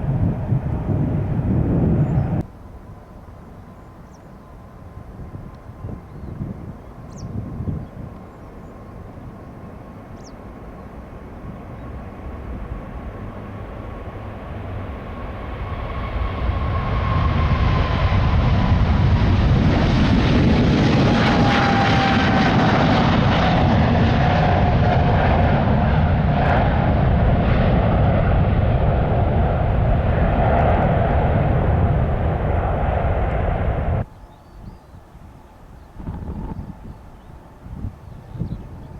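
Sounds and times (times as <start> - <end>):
jet engines at takeoff thrust: 0.0 - 38.9
high engine whine falling: 13.2 - 34.1.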